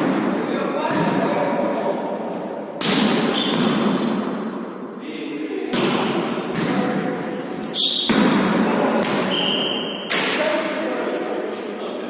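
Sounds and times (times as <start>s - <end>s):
tennis ball thud in reverberant hall: 2.5s - 4.6s, 5.7s - 7.2s, 7.8s - 10.6s.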